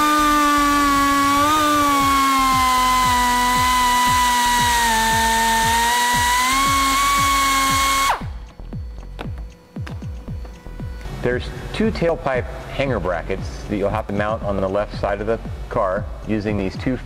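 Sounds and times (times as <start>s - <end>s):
die grinder whining: 0.0s - 9.1s.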